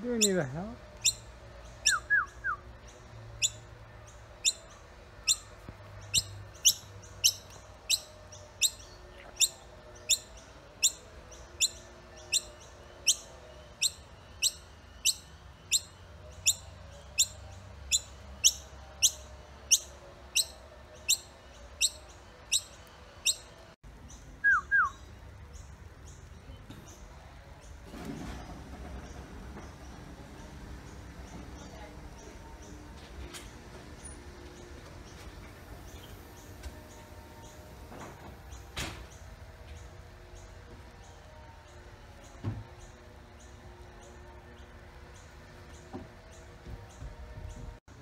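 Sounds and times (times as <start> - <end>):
baby bird peeping: 6.1 - 23.5.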